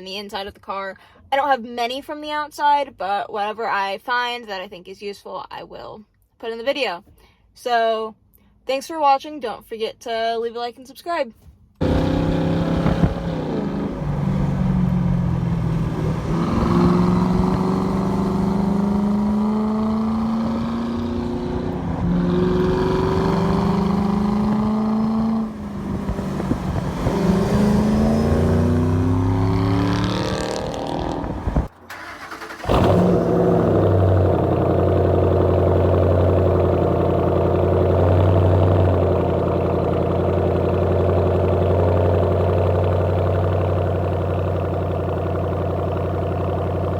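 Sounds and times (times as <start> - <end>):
car engine idling: 11.8 - 26.8, 31.3 - 46.9
car engine revving: 11.8 - 46.9.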